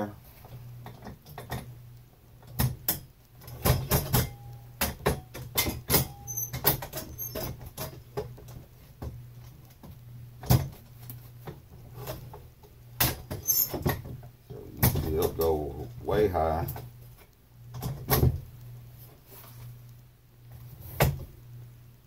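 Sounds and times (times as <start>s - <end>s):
sharp clicks and knocks: 0.8s - 15.6s.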